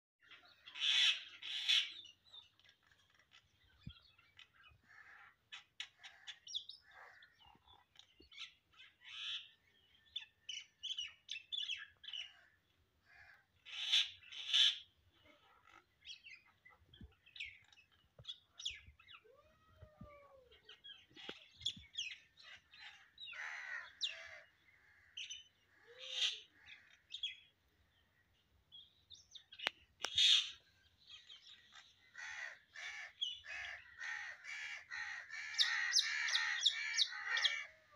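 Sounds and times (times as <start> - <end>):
harsh bird calls: 10.8 - 27.5, 29.3 - 37.9
bird chirps and twitters: 13.7 - 24.6.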